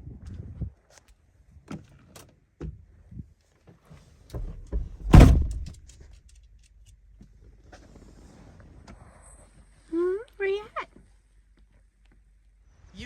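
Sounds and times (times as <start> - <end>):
door handle clicks and knocks: 4.4 - 5.8
vehicle door thud: 4.4 - 5.8.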